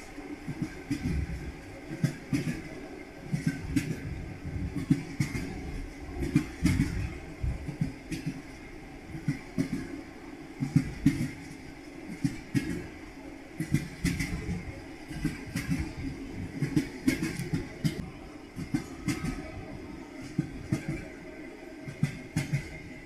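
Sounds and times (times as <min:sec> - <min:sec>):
low rumble of moving train: 0:00.0 - 0:23.0
train wheels clattering over rail joints: 0:03.3 - 0:08.5, 0:10.6 - 0:13.0, 0:13.6 - 0:18.0, 0:21.9 - 0:22.9.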